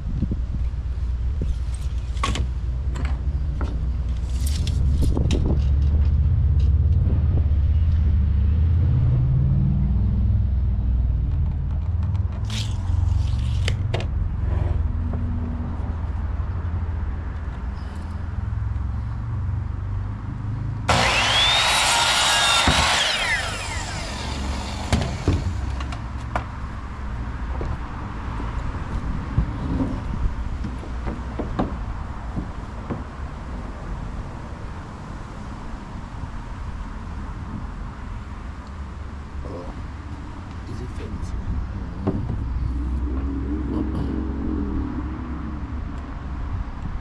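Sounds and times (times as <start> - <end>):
power drill whine: 20.9 - 25.9
steady low rumble: 39.2 - 47.0.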